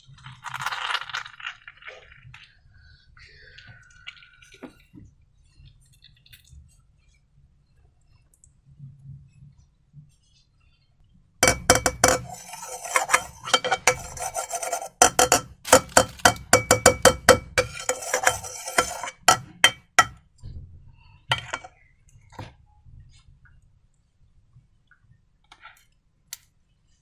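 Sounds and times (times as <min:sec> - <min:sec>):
utensil scraping ringing bowl: 0:11.4 - 0:20.2, 0:21.3 - 0:21.7.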